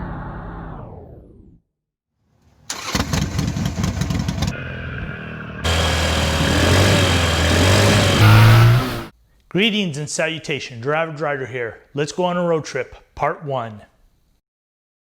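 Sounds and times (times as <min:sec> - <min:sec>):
motorcycle engine starting: 0:02.7 - 0:09.1
steady engine hum with hiss: 0:05.6 - 0:09.1.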